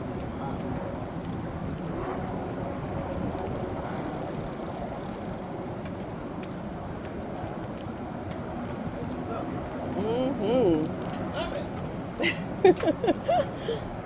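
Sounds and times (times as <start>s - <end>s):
e-bike rumbling: 0.0s - 14.0s.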